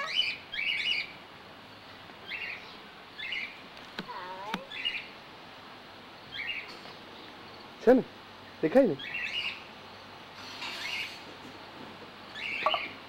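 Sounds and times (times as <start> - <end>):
small bird chirping: 0.0 - 5.2, 6.2 - 7.8, 8.4 - 11.2, 12.3 - 13.0.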